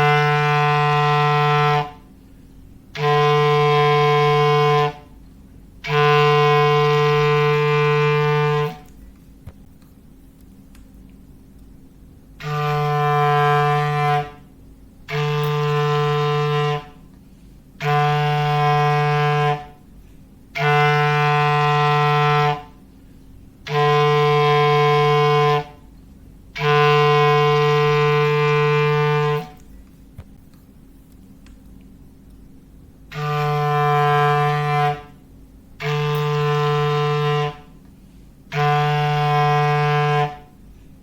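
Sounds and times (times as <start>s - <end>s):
low foghorn blasts: 0.0s - 2.2s, 2.9s - 5.2s, 5.8s - 9.0s, 12.4s - 17.1s, 17.8s - 22.9s, 23.6s - 25.9s, 26.5s - 29.6s, 33.1s - 40.7s.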